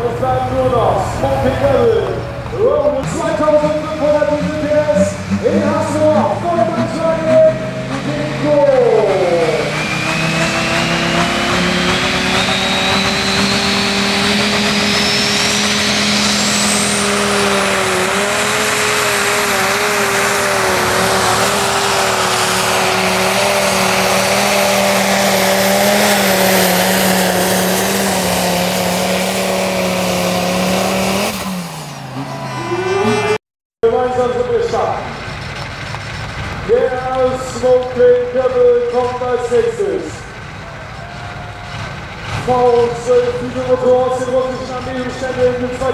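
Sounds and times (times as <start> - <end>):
diesel engine running hard: 0.0 - 45.9
high whistle: 9.7 - 15.6, 32.2 - 33.3.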